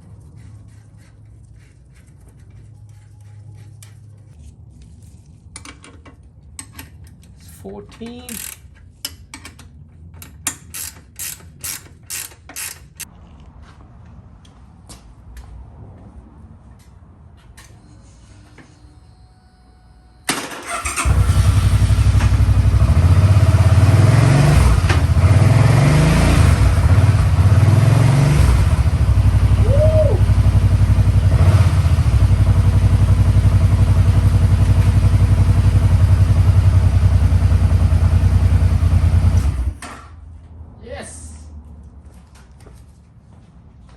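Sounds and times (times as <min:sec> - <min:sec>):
motorcycle engine revving and idling: 0:20.6 - 0:39.8.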